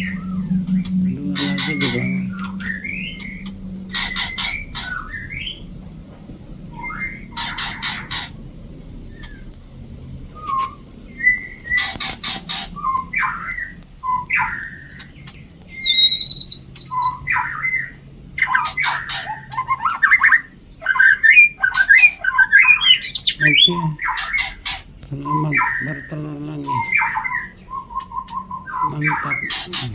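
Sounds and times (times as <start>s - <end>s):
bird chirps and whistles: 0.0s - 5.7s, 10.4s - 15.1s, 15.7s - 26.0s
bird clicking chatter: 7.4s - 8.4s, 11.8s - 12.8s, 29.4s - 29.9s.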